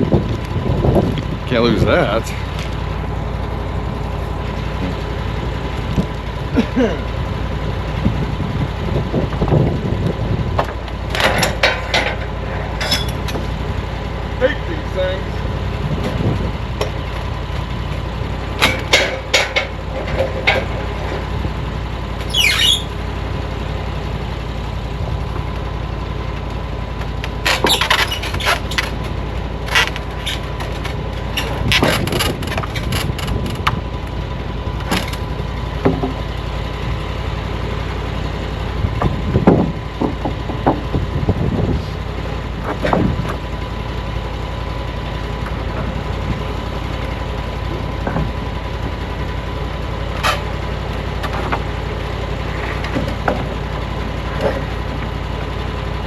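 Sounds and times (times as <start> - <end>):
engine idling: 0.0 - 56.0
sharp clicks and knocks: 18.6 - 20.8, 27.0 - 33.8, 34.8 - 36.2
high squeak falling in pitch: 22.2 - 23.0.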